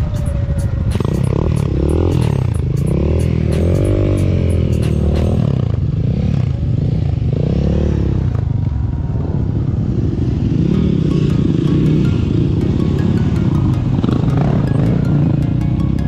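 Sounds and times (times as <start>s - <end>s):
dirt bike engine revving: 0.9s - 8.3s, 10.2s - 15.6s.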